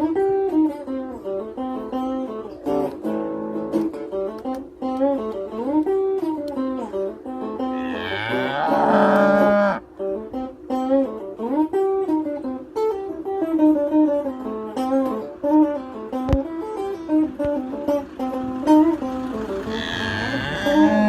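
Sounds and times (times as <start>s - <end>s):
guitar music: 0.0s - 21.0s
cow mooing: 7.7s - 9.8s, 19.6s - 21.0s.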